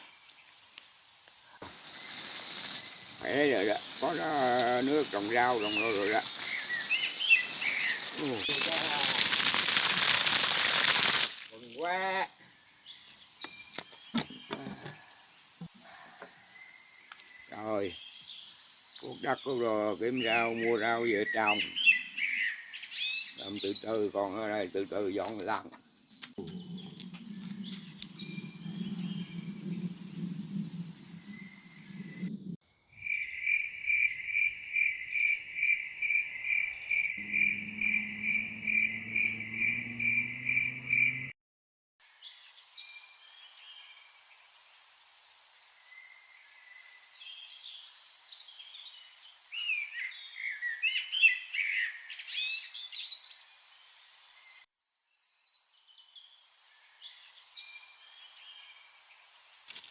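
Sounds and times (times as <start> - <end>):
birds chirping: 0.0 - 41.3
insect chirping: 1.0 - 17.7, 26.2 - 41.3
low hum: 26.3 - 32.6, 37.2 - 41.1.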